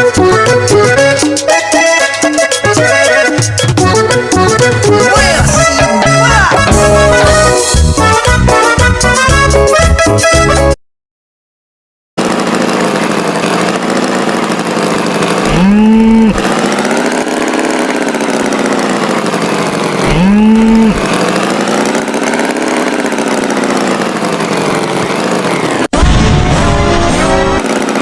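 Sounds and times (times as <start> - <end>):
tractor engine running: 0.0 - 10.7, 12.2 - 28.0
music: 0.0 - 10.8, 26.0 - 27.6
cow mooing: 5.2 - 7.2, 20.0 - 21.0.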